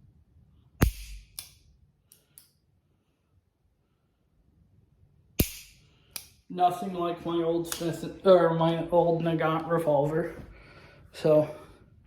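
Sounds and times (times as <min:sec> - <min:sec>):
revolver hammer snapping: 0:00.8 - 0:01.6, 0:05.4 - 0:06.4.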